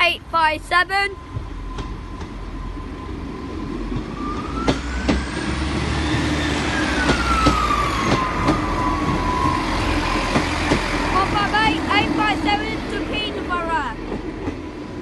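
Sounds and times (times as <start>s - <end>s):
rumble of vehicles: 0.0s - 15.0s
siren wailing: 4.1s - 11.8s.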